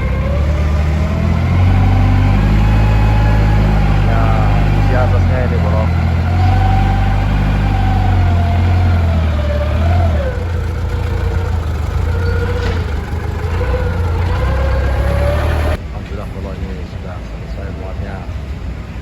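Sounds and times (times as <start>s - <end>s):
vehicle engine humming with whine: 0.0s - 16.5s.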